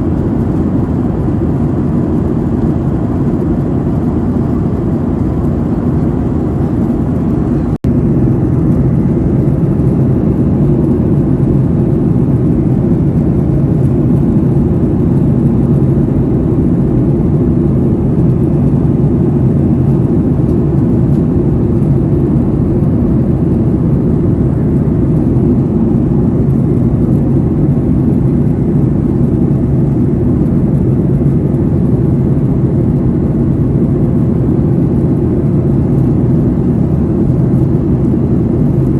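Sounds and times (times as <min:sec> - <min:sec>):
jet airliner cabin drone: 0:00.0 - 0:38.9.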